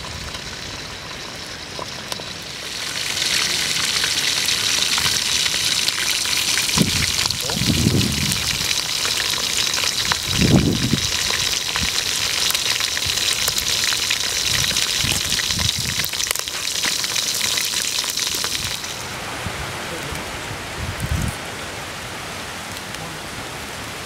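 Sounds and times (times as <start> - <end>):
oil sizzling and popping: 0.0 - 19.2.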